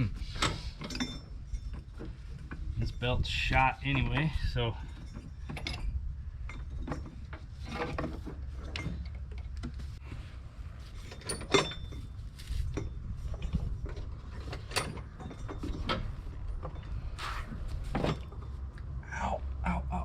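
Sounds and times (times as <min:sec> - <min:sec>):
belt and metal parts clicking: 0:00.0 - 0:03.0.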